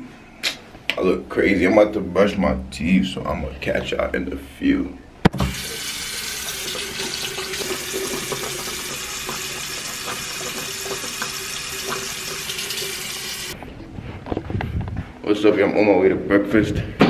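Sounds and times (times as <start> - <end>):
tap running into a basin: 5.4 - 13.6.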